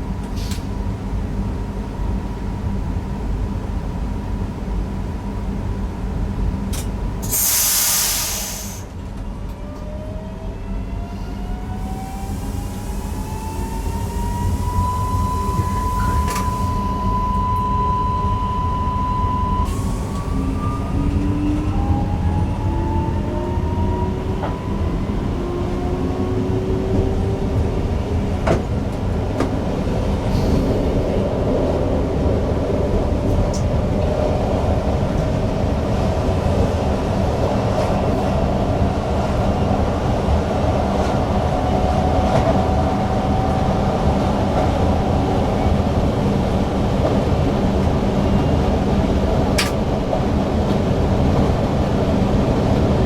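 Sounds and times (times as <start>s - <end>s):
train running rumble: 0.0s - 53.0s
air hiss: 7.2s - 8.9s
electric train drive whine: 9.2s - 30.2s.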